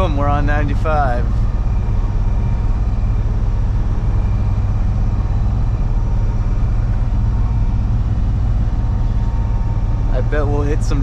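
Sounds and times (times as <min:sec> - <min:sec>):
diesel engine rumble: 0:00.0 - 0:11.0.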